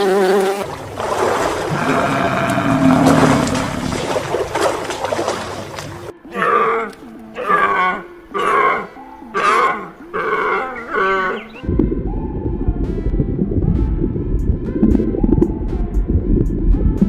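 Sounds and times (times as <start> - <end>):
animal calling: 6.3 - 11.6
low rumble: 11.6 - 17.0.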